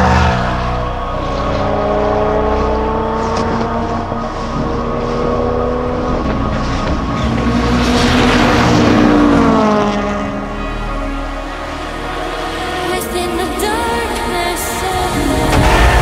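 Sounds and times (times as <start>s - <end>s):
race car passing: 0.0s - 16.0s.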